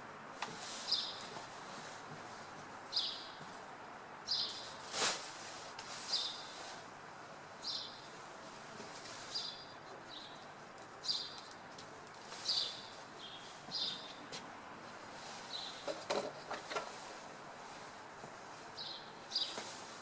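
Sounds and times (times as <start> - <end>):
city background murmur: 0.0 - 20.0
small birds chirping: 0.6 - 1.3, 2.8 - 3.6, 4.2 - 4.9, 6.0 - 6.8, 7.6 - 8.2, 8.9 - 14.3, 15.4 - 16.0, 18.7 - 19.9.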